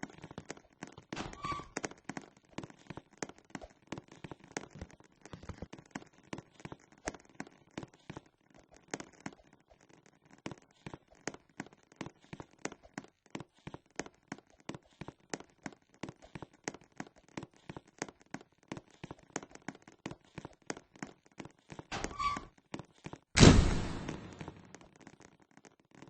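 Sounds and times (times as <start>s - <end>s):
loud thud: 23.4s - 24.6s.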